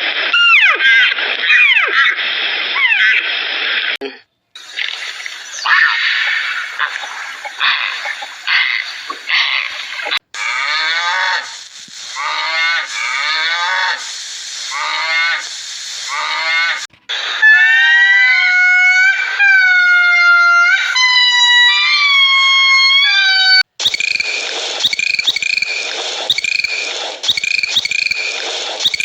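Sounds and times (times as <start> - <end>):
animal drawn-out falling calls: 0.4 - 2.2, 5.5 - 29.0.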